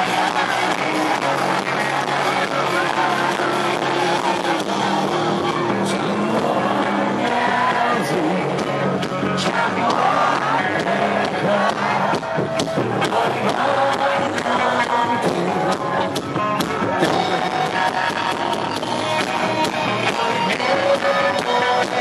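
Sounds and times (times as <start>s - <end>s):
rock band playing live: 0.0s - 22.0s.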